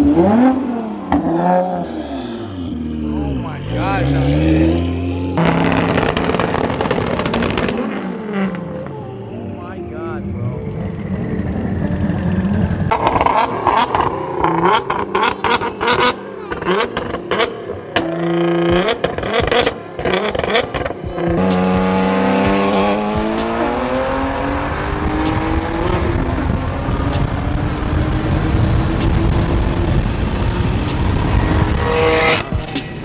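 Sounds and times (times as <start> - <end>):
race car engine at full throttle: 0.0 - 33.0
engine cracks and pops: 5.4 - 8.1.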